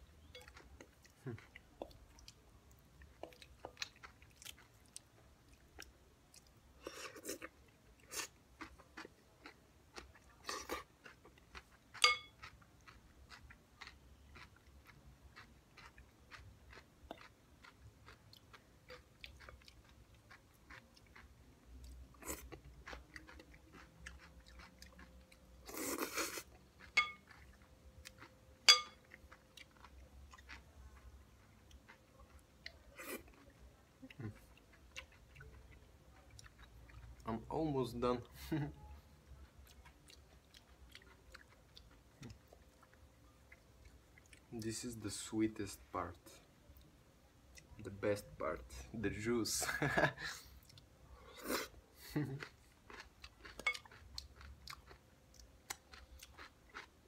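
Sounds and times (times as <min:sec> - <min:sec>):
chewing and crunching salad: 0:00.0 - 0:57.0
wooden fork clinking on bowl: 0:12.0 - 0:12.3, 0:27.0 - 0:27.2, 0:28.7 - 0:29.0.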